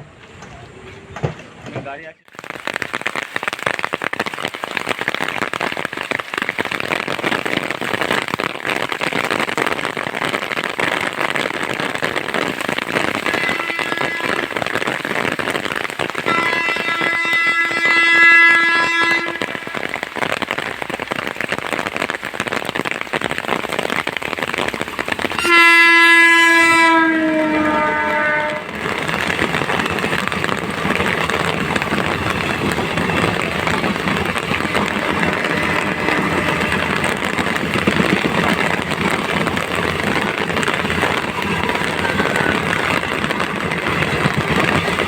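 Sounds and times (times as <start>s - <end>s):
train wheels on rails: 0.0s - 3.7s, 9.4s - 45.0s
locomotive horn: 13.0s - 15.2s, 16.1s - 20.2s, 25.4s - 45.0s.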